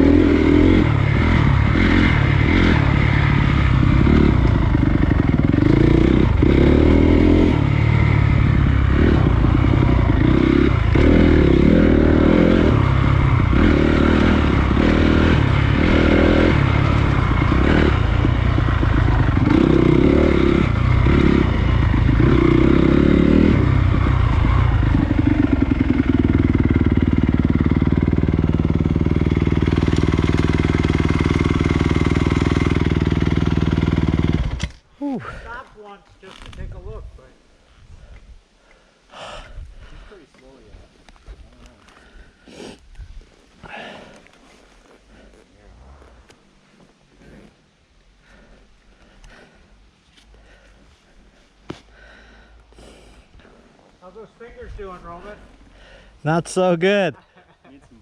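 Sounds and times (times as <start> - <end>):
dirt bike engine revving: 0.0 - 34.7.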